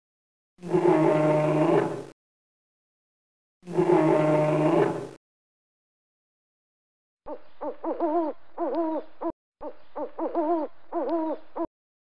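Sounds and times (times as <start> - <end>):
owl hooting: 7.3 - 11.7.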